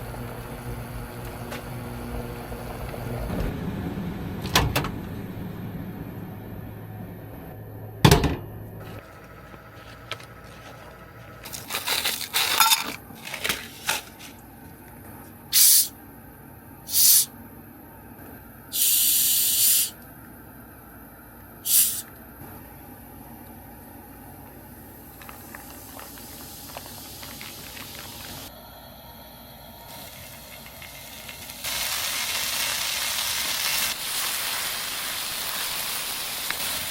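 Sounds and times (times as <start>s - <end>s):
short hissing sprays: 15.5s - 15.9s, 16.9s - 17.3s, 18.8s - 20.0s, 21.7s - 22.1s.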